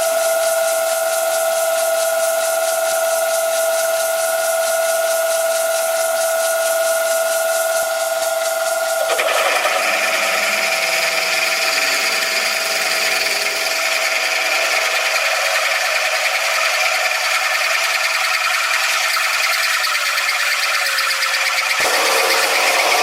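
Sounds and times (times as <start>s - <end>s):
lathe machining metal: 0.1s - 23.0s
harsh cutting with high whine: 3.5s - 23.0s.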